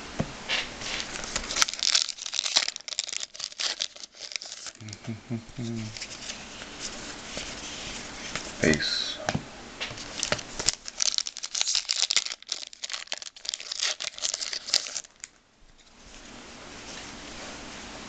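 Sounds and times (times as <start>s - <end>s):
plastic wrapper crinkling and tearing: 0.8s - 7.6s, 10.0s - 15.4s.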